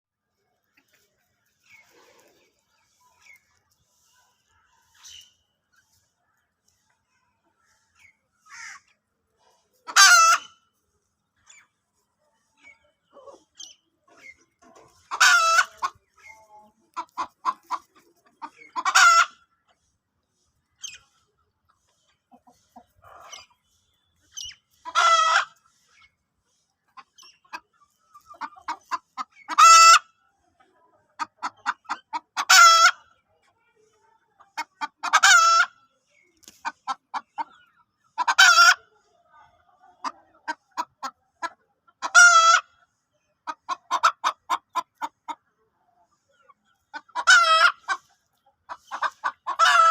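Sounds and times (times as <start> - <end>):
chickens clucking: 0.2 - 49.9.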